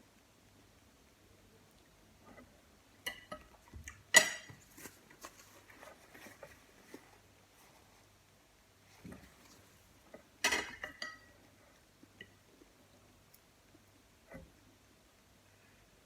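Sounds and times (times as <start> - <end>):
cutlery clinking on plate: 4.1 - 4.6, 10.4 - 11.3.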